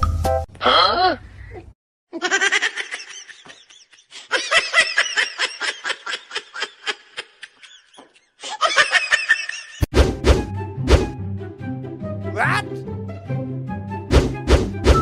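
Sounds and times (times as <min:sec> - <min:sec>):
person laughing hard: 0:02.2 - 0:09.8.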